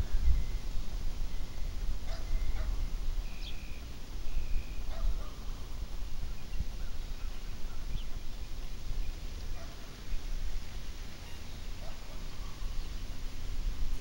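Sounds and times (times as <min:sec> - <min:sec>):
low steady rumble: 0:00.0 - 0:14.0
bird chirping: 0:01.3 - 0:05.2.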